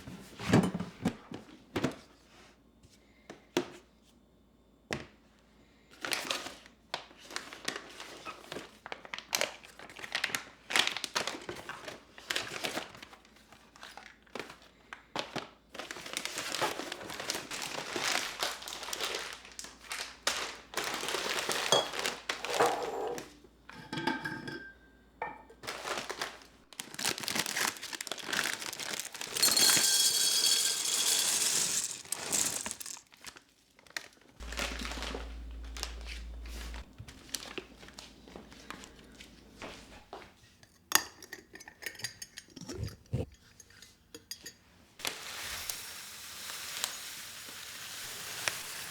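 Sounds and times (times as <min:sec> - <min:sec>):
crinkling and rustling by hand: 0:06.0 - 0:23.4, 0:25.6 - 0:40.5.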